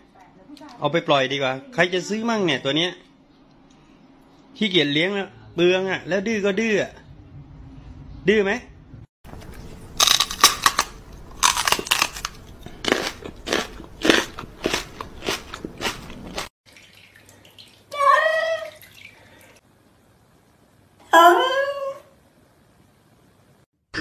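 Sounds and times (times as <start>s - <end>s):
crunching hard food: 9.3s - 16.5s.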